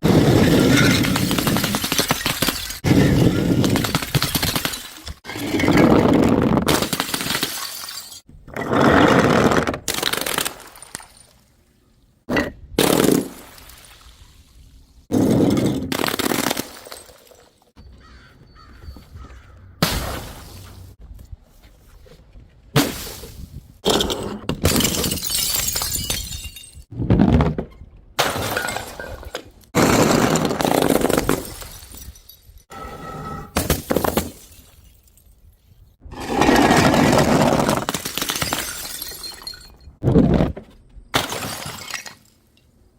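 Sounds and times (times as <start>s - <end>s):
glass bottles smashing: 0.0s - 6.0s, 6.7s - 8.3s, 23.9s - 26.9s, 28.2s - 32.8s, 33.5s - 35.5s, 36.4s - 40.0s, 41.1s - 42.6s.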